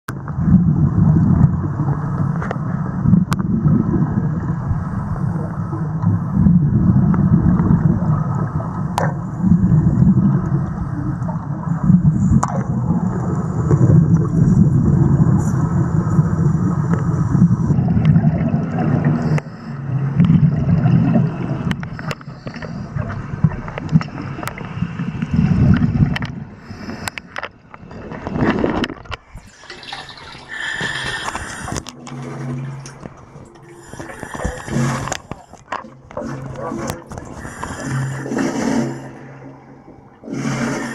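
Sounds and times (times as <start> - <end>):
underwater bubbling and gurgling: 0.1 - 40.9.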